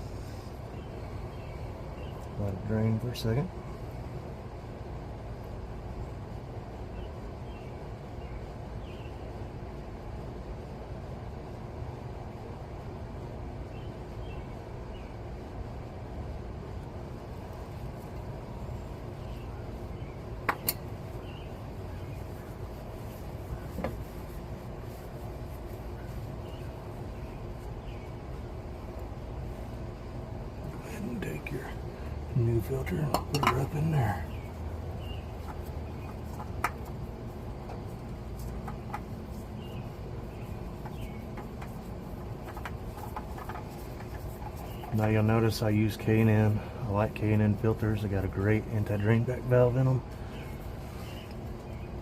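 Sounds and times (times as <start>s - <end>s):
low background hum: 0.0s - 52.0s
oil filter clicks and taps: 36.2s - 36.9s.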